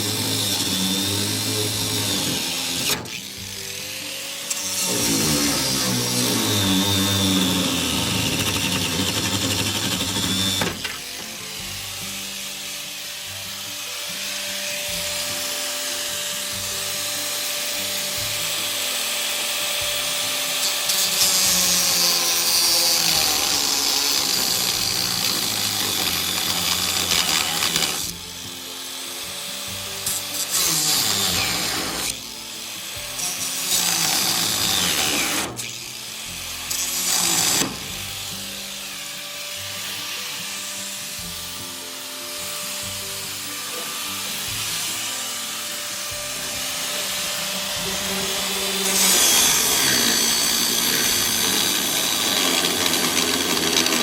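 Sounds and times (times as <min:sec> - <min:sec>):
background music: 0:00.0 - 0:54.0
power tool running harshly: 0:00.0 - 0:54.0.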